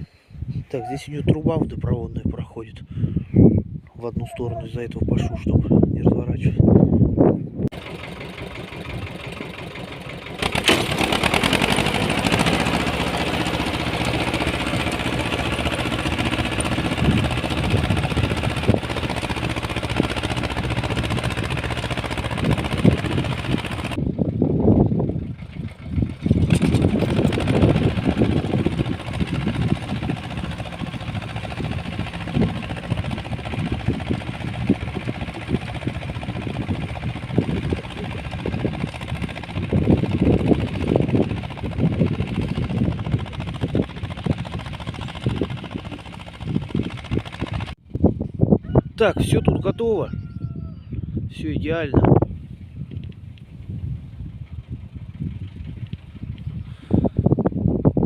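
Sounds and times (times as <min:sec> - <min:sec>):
rotary tiller in soil: 0:07.7 - 0:24.0, 0:25.0 - 0:47.8
walk-behind tractor engine running: 0:07.7 - 0:47.8, 0:52.9 - 0:56.6.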